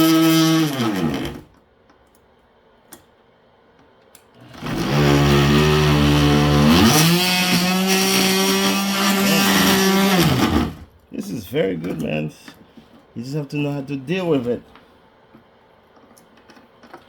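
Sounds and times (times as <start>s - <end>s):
oscillating multi-tool buzzing hum: 4.5s - 10.8s.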